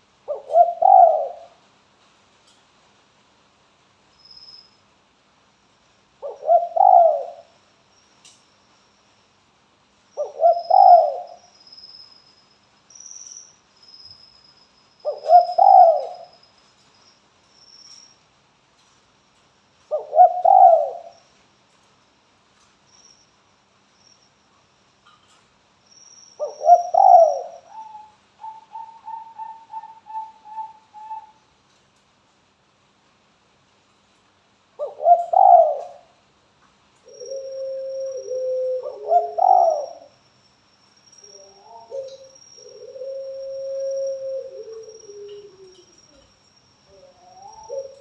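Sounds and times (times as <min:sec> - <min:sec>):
dove cooing: 0:00.3 - 0:01.6, 0:06.2 - 0:07.5, 0:10.2 - 0:11.4, 0:15.1 - 0:16.3, 0:19.9 - 0:21.2, 0:26.4 - 0:31.4, 0:34.8 - 0:36.1, 0:37.1 - 0:40.1, 0:41.3 - 0:46.3, 0:46.9 - 0:48.0.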